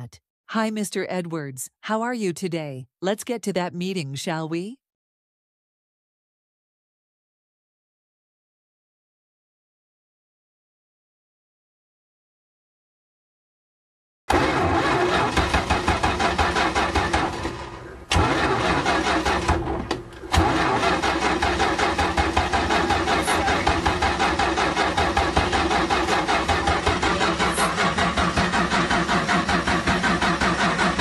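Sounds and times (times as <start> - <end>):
car engine cranking: 14.3 - 31.0.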